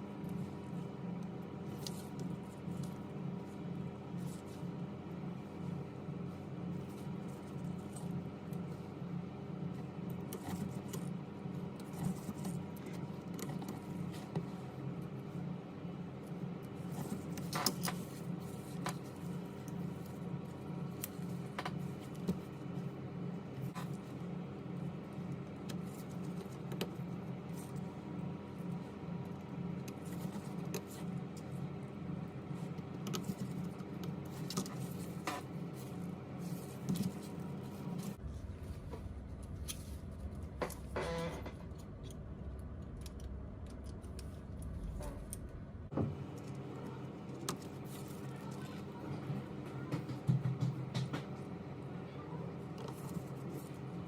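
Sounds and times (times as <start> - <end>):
low electrical hum: 0.0 - 54.0
small clicks and scratches: 0.2 - 4.8, 9.7 - 15.4, 16.2 - 22.9, 23.5 - 31.7, 32.4 - 38.3, 39.0 - 45.5.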